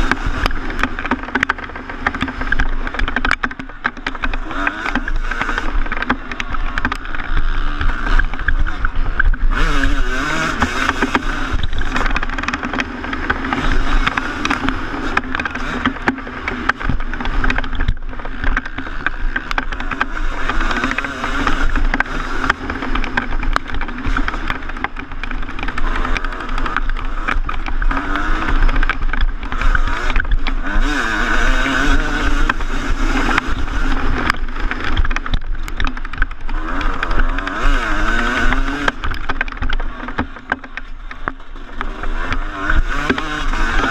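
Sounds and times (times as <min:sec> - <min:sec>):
motocross engine revving: 0:00.0 - 0:43.9.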